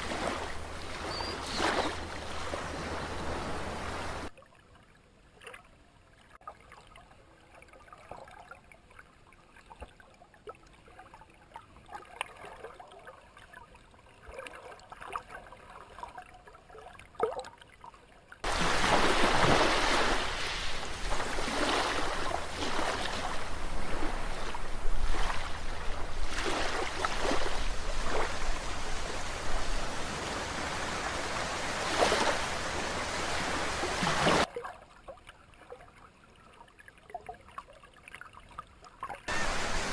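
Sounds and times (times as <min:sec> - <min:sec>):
water rushing: 0:00.0 - 0:04.3, 0:18.4 - 0:34.5, 0:39.3 - 0:39.9.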